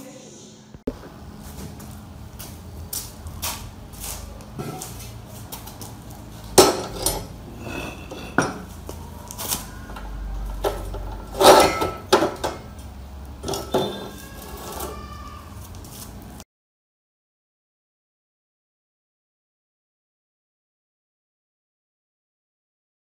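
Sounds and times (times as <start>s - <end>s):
metal parts clinking and knocking: 6.6s - 8.7s, 10.0s - 12.6s, 13.4s - 14.9s.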